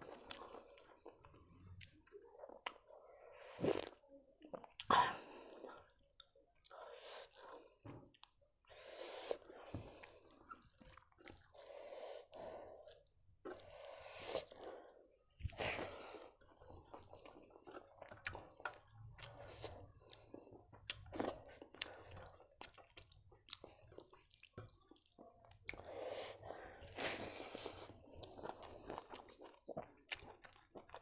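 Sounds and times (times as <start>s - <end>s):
person chewing wetly: 0.0s - 8.4s, 9.3s - 31.0s.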